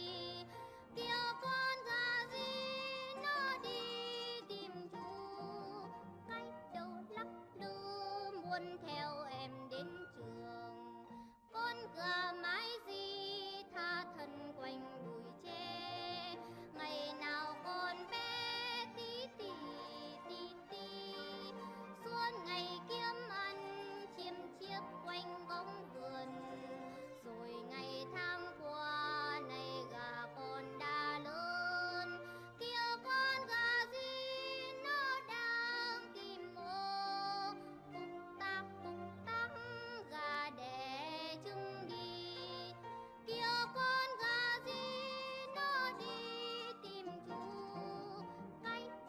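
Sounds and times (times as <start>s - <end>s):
high voice singing with vibrato: 0.0s - 10.8s
backing music: 0.0s - 49.0s.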